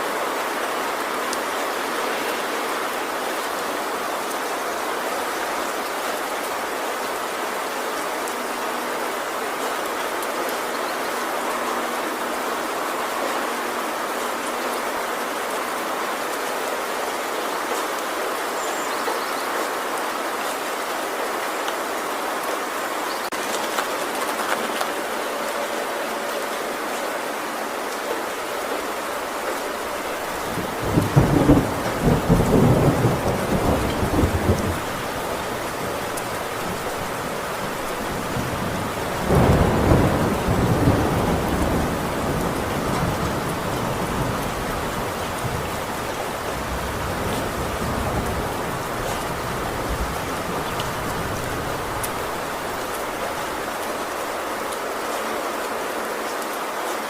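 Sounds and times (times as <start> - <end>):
heavy rain on a tin roof: 0.0 - 57.0
thunder rumbling: 29.2 - 54.2.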